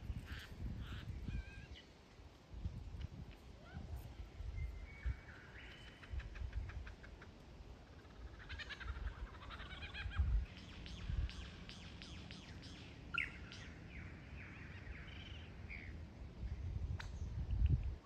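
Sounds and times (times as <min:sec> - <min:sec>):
lyrebird singing: 0:04.6 - 0:16.0.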